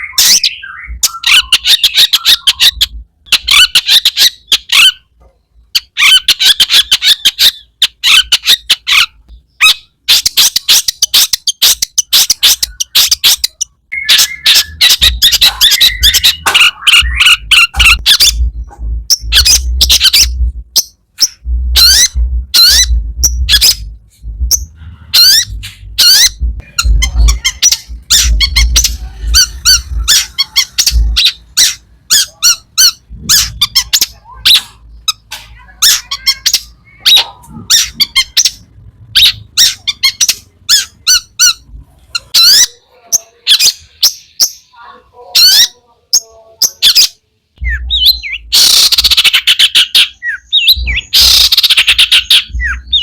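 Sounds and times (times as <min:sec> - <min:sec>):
shrike singing harsh chattering notes: 0:09.8 - 0:42.7
low thumping: 0:15.0 - 0:33.9.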